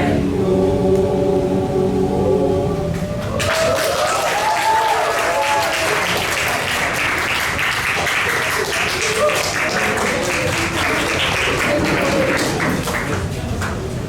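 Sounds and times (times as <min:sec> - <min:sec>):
audience applauding: 0:03.2 - 0:13.8.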